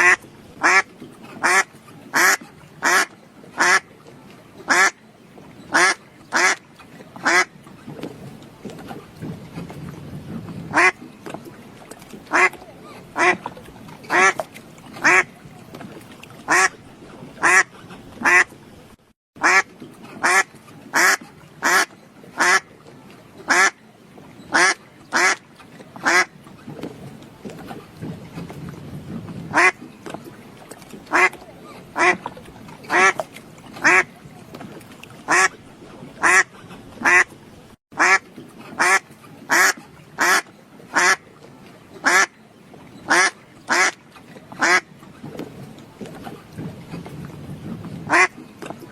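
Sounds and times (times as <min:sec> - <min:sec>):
duck quacking: 0:00.0 - 0:00.8, 0:01.4 - 0:03.8, 0:04.7 - 0:05.0, 0:05.7 - 0:06.6, 0:07.2 - 0:07.5, 0:10.7 - 0:11.0, 0:12.3 - 0:12.6, 0:15.0 - 0:15.3, 0:17.4 - 0:18.4, 0:19.4 - 0:19.6, 0:21.0 - 0:22.6, 0:29.5 - 0:29.8, 0:31.1 - 0:31.4, 0:32.0 - 0:32.2, 0:33.8 - 0:34.1, 0:36.2 - 0:37.2, 0:38.0 - 0:38.2, 0:38.8 - 0:40.4, 0:41.0 - 0:41.2, 0:42.0 - 0:42.3, 0:43.1 - 0:43.9, 0:44.6 - 0:44.8, 0:48.1 - 0:48.3.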